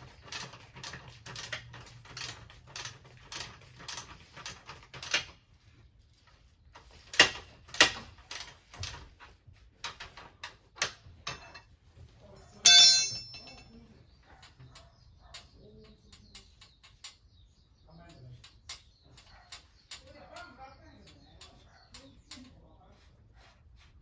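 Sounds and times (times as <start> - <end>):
loud metallic clink: 12.6 - 13.6.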